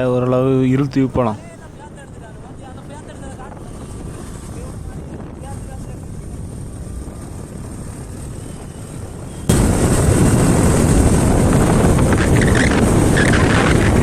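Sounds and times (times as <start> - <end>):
vehicle wind and road noise: 0.0 - 14.0
wind buffeting microphone: 0.0 - 14.0.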